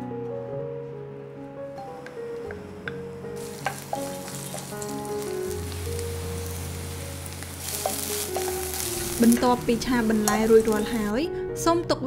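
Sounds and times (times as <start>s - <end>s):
mushrooms sizzling in oil: 2.1s - 11.2s.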